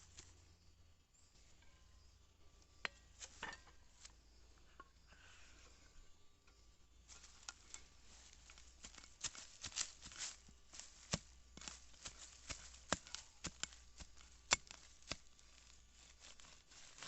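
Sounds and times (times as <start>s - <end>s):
hand tool digging in soil: 7.1s - 17.0s.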